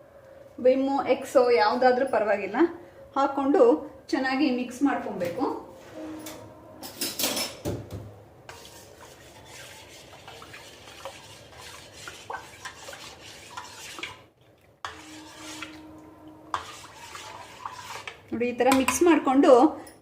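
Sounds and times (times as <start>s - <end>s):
spoon stirring clinking bowl: 14.8s - 19.2s.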